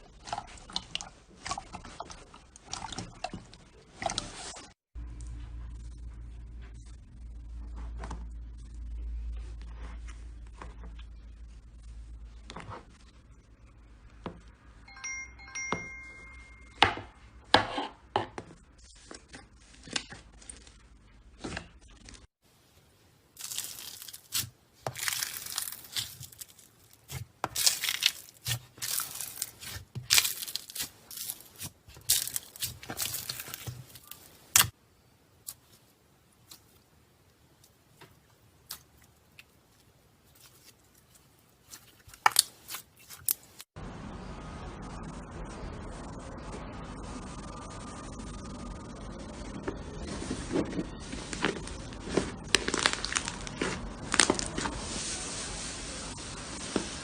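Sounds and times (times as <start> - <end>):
chime-like tone: 14.9 - 17.1
slime squished by hand: 23.4 - 34.7, 51.3 - 54.7.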